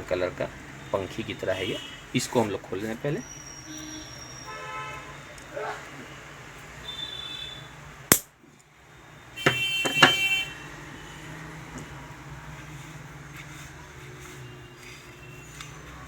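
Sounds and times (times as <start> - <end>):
metal tools clinking: 9.5 - 10.4.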